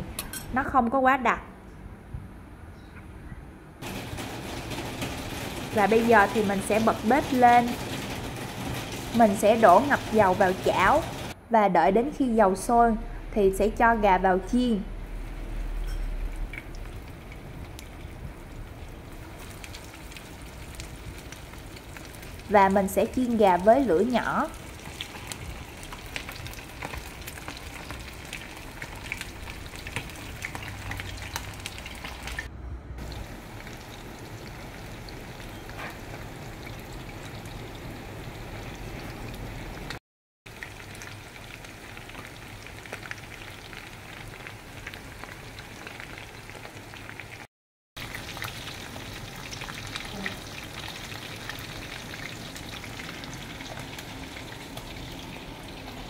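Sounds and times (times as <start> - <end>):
chicken deep-frying in oil: 3.8 - 11.4, 13.6 - 56.0.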